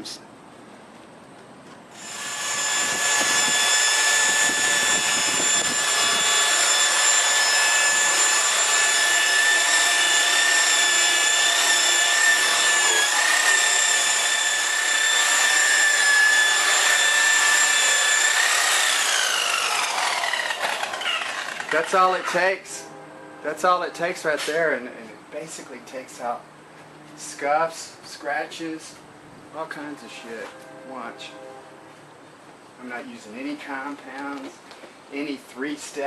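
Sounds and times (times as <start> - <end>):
paint polisher whining: 2.0 - 22.9.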